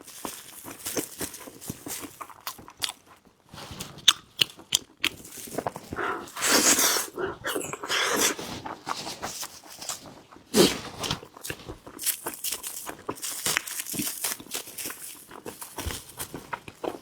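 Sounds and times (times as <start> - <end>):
wet chewing and lip-smacking: 0.6 - 9.0.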